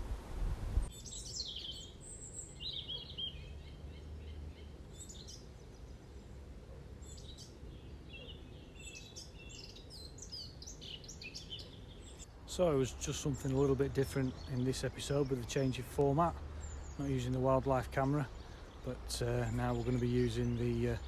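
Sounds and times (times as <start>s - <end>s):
low wind rumble: 0.0s - 0.9s
wind noise on microphone: 0.0s - 0.9s
songbirds chirping and singing: 0.9s - 21.0s.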